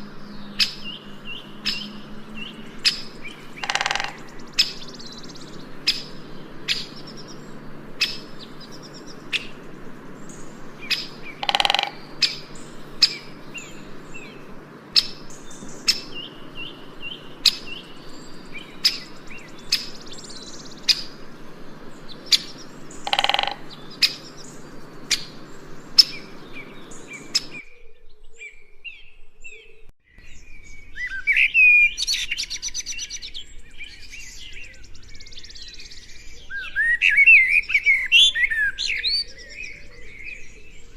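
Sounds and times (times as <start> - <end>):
bird sharp chirps: 0.0 - 27.8
harsh bird calls: 0.0 - 27.8
bird twittering: 0.0 - 40.8.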